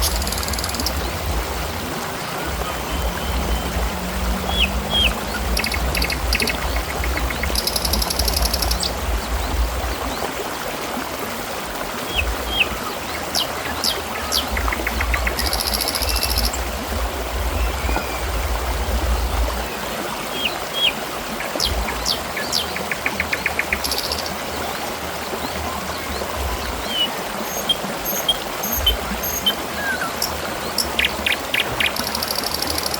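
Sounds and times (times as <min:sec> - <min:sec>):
small birds chirping: 0:00.0 - 0:01.4, 0:02.5 - 0:09.6
water trickling and splashing: 0:00.0 - 0:32.9.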